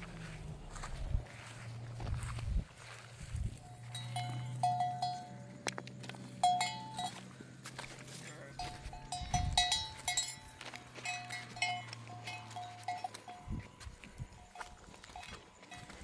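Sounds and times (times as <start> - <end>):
steady low hum: 0.0 - 12.8
animal bells clinking: 0.0 - 16.0.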